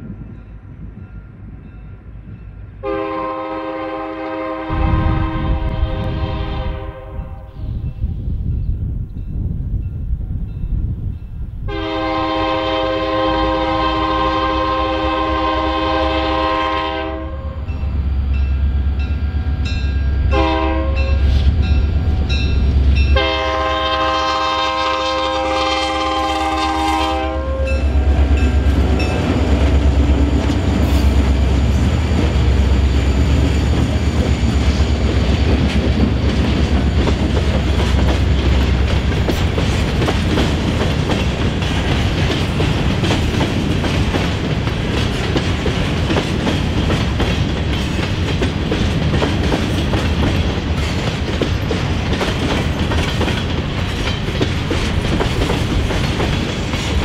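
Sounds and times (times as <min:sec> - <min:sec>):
locomotive engines rumbling: 0:00.0 - 0:57.0
locomotive air horn blasts: 0:02.8 - 0:07.6, 0:11.7 - 0:17.7, 0:20.2 - 0:21.5, 0:23.1 - 0:28.7
train wheels clickety-clack: 0:20.4 - 0:57.0.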